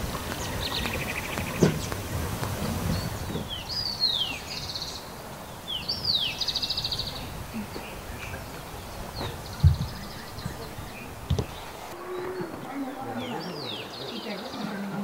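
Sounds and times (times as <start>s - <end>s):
short thump: 9.2s - 10.6s.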